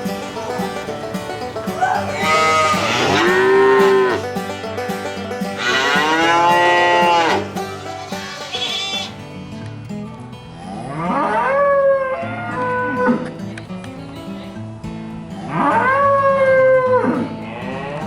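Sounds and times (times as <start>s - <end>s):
cow mooing: 1.7s - 4.4s, 5.6s - 9.1s.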